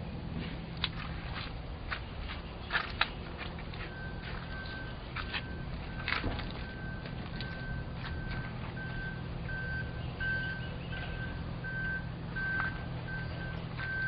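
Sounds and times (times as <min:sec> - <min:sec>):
low machinery hum: 0:00.0 - 0:14.0
electronic alarm beeping: 0:03.9 - 0:14.0.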